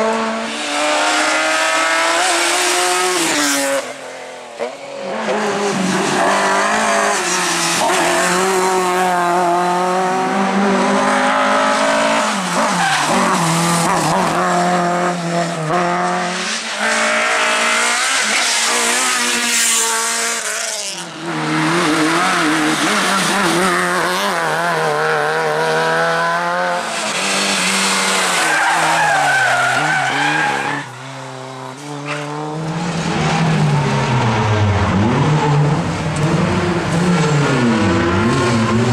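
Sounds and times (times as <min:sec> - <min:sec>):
rally car engines revving: 0:00.0 - 0:38.9
tyres squealing and skidding: 0:11.2 - 0:14.4, 0:26.8 - 0:36.1.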